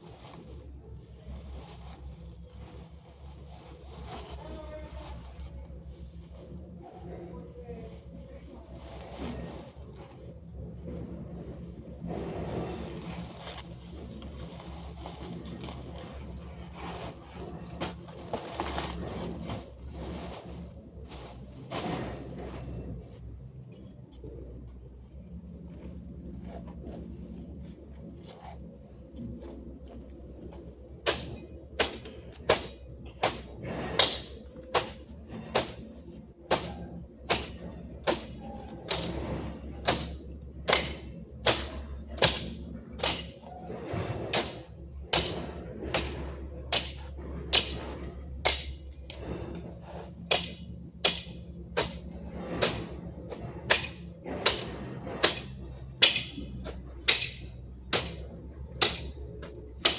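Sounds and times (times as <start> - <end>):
hand tool chopping: 31.1 - 35.8, 36.5 - 43.5, 44.3 - 49.2, 50.3 - 52.0, 52.6 - 52.9, 53.7 - 58.2, 58.8 - 59.2.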